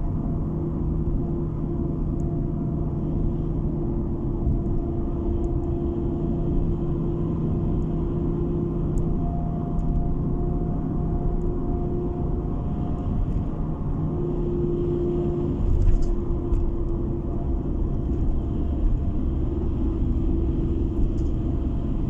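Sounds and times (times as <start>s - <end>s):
car cabin road and engine noise: 0.0s - 22.0s.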